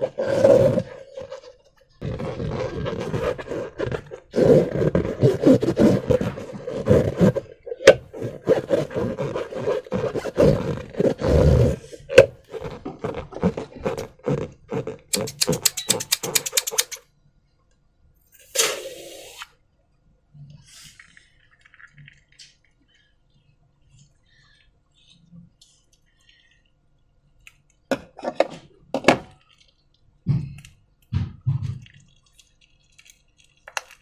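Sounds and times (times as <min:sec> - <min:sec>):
slime squelching: 0:00.8 - 0:17.0, 0:29.4 - 0:34.0.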